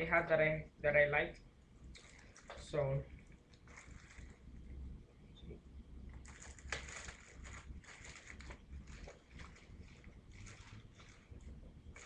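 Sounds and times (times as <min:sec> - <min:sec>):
steady low hum: 0:00.0 - 0:12.0
packaging rustling and scraping: 0:03.6 - 0:04.4, 0:06.2 - 0:12.0.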